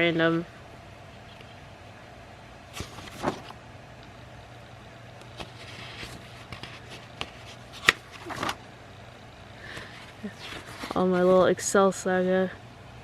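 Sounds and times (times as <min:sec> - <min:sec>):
low steady hum: 0:00.0 - 0:13.0
paper rustling: 0:02.7 - 0:03.6, 0:05.3 - 0:08.6, 0:09.7 - 0:11.5.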